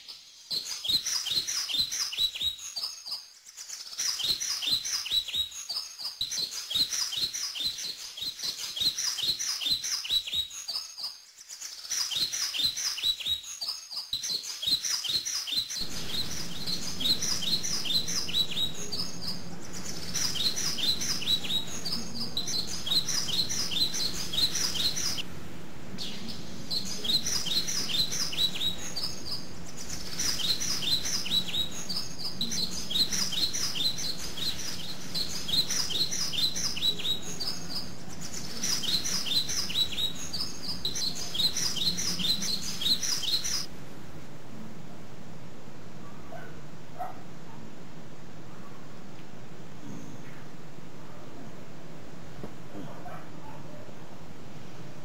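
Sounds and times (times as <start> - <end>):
birds chirping: 0.0 - 43.7
steady low hum: 15.8 - 55.0.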